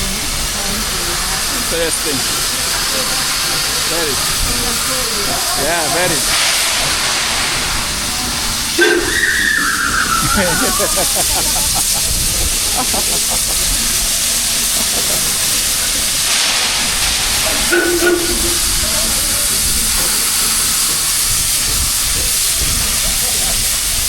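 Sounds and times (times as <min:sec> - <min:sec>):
steam locomotive venting steam: 0:00.0 - 0:24.0
brief tone: 0:08.8 - 0:10.1, 0:17.7 - 0:18.6.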